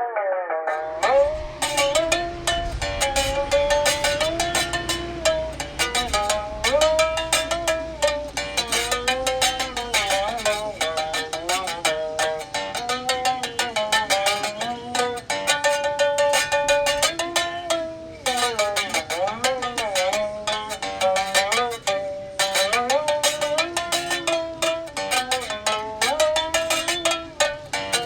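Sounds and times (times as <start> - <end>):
electric berimbau string struck: 0.7 - 28.0.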